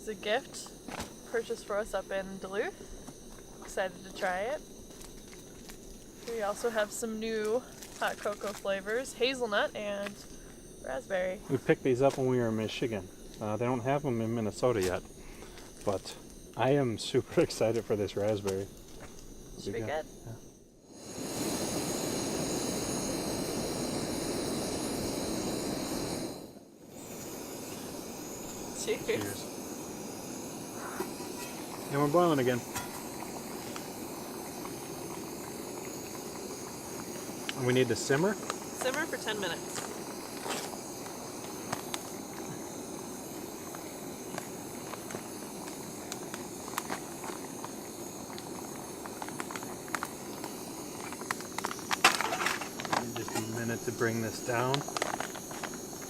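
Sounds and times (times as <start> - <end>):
camp stove burner roaring hiss: 0.0 - 56.0
food simmering in a pot: 20.4 - 56.0
small clicks and pops: 43.7 - 53.4.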